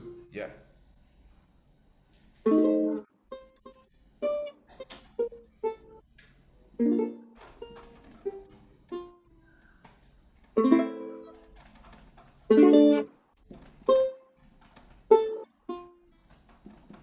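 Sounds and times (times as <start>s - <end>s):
ukulele plucked notes: 2.4s - 6.0s, 6.8s - 9.6s, 10.5s - 11.5s, 12.5s - 14.4s, 15.1s - 16.2s
ukulele strummed chords: 2.4s - 6.0s, 6.8s - 9.4s, 10.6s - 11.5s, 12.5s - 14.4s, 15.1s - 16.1s.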